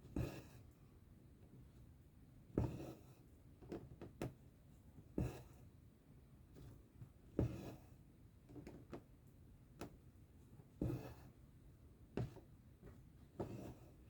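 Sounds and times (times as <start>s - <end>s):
needle tapping through fabric: 2.5s - 3.0s, 5.2s - 5.5s, 6.6s - 7.8s, 9.8s - 10.0s, 10.8s - 11.3s, 12.1s - 13.9s.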